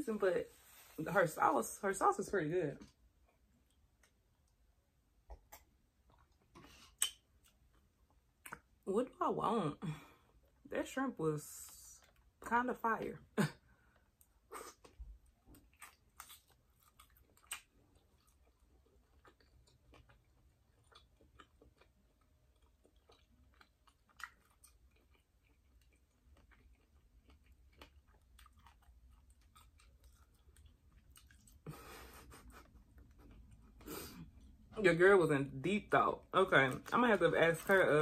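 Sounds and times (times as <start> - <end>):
person chewing food: 2.8 - 8.8, 13.7 - 34.7.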